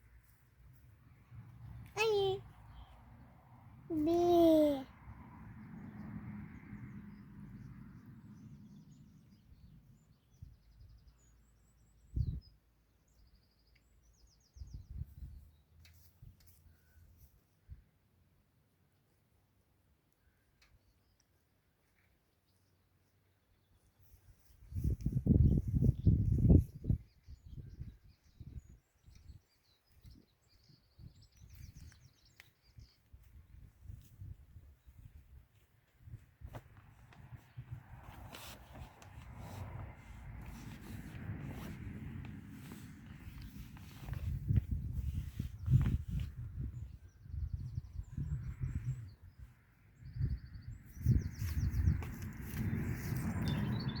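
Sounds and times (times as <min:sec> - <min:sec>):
outdoor background noise: 0:00.0 - 0:54.0
small birds chirping: 0:20.2 - 0:54.0.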